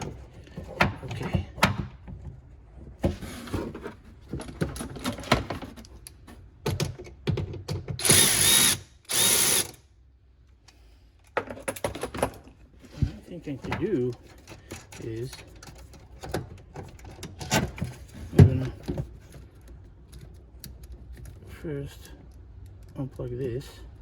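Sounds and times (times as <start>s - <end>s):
power tool running: 8.0s - 9.8s
clicks and knocks of tools: 22.0s - 23.0s.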